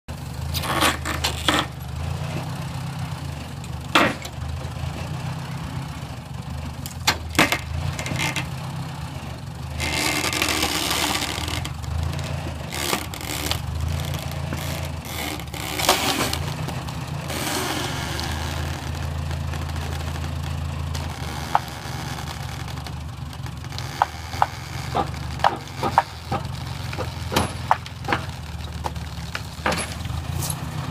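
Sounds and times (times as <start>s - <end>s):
tractor engine running: 0.1s - 30.9s
wood crashing and scraping: 3.8s - 5.0s, 6.8s - 8.6s, 9.6s - 30.9s
wood timbers cracking and splintering: 6.8s - 8.6s, 9.6s - 30.9s.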